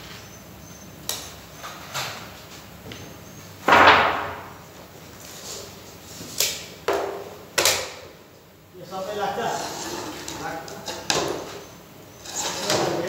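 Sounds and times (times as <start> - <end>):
sharp knocks and bangs: 3.6 - 4.7.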